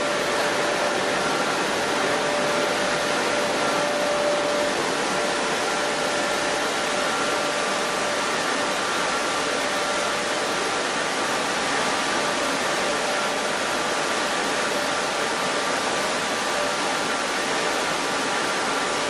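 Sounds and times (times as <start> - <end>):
faint steady whine: 0.0 - 19.0
milling machinery drone: 0.0 - 19.0.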